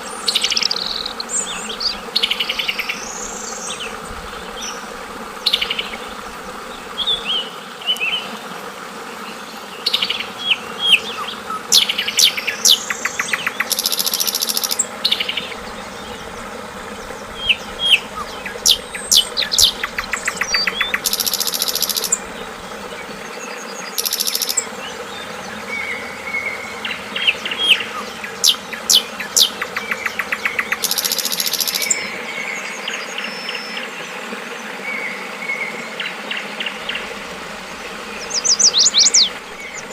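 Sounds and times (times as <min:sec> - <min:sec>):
high buzzy bird trills: 0:00.0 - 0:08.4, 0:09.2 - 0:39.9
flowing water: 0:00.0 - 0:39.9
bird chirping and whistling: 0:24.0 - 0:24.7, 0:27.2 - 0:32.0, 0:38.3 - 0:39.9.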